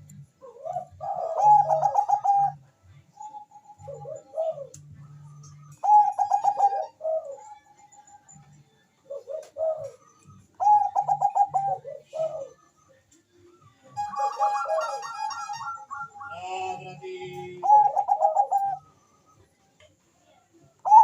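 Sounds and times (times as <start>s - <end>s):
dove cooing: 0.3s - 4.9s, 5.7s - 8.0s, 9.0s - 12.8s, 14.0s - 19.4s, 20.7s - 21.0s.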